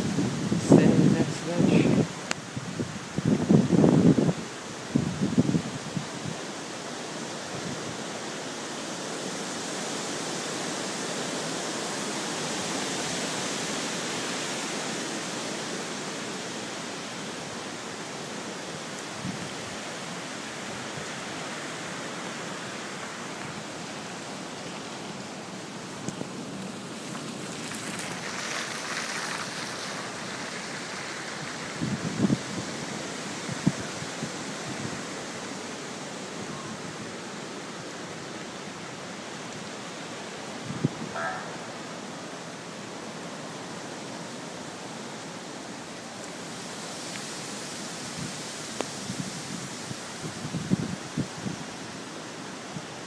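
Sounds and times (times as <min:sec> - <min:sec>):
wind and rain hissing: 0:00.0 - 0:53.0.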